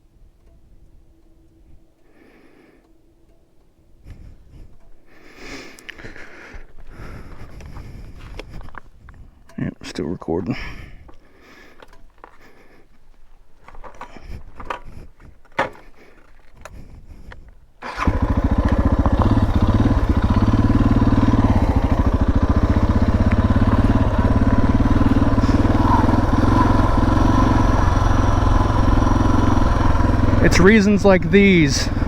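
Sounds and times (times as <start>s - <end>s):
faint clicks and handling: 11.1s - 17.6s
motorcycle engine starting and running: 13.6s - 32.0s.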